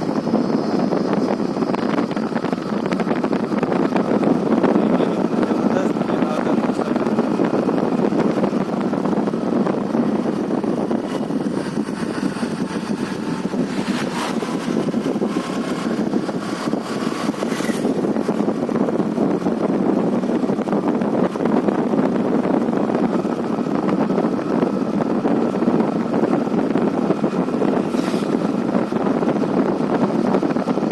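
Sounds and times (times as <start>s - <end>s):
vehicle engine running: 0.0s - 30.9s.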